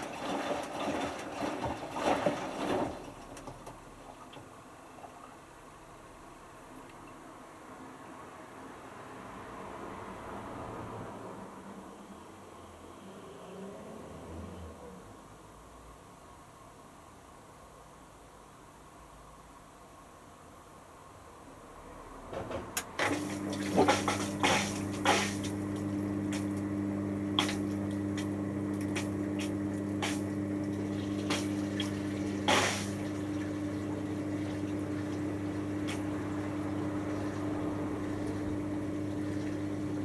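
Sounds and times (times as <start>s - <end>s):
water sloshing and gurgling: 0.0s - 5.3s, 23.0s - 26.6s, 27.4s - 40.0s
washing machine drain pump: 0.0s - 5.5s, 22.3s - 40.0s.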